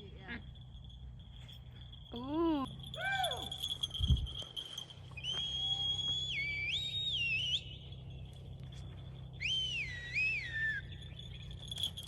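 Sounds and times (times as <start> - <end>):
faint high insect trill: 0.0 - 12.0
whistled recall call: 5.1 - 8.1, 9.3 - 11.6.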